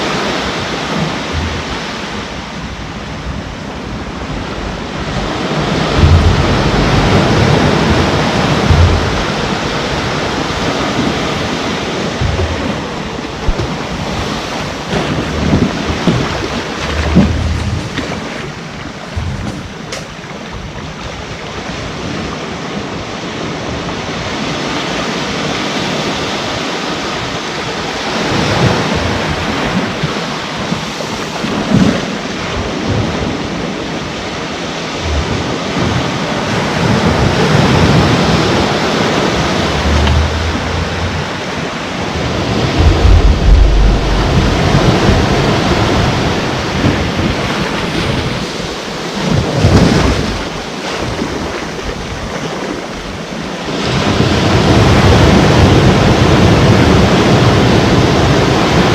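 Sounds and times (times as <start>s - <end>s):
sea waves breaking on shore: 0.0s - 58.9s
wind buffeting microphone: 0.0s - 58.9s.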